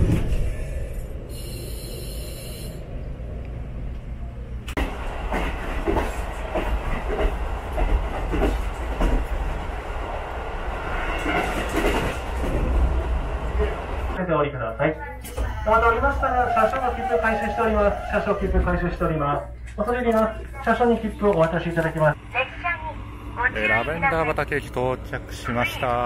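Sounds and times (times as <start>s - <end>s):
train low rumble: 0.0s - 26.0s.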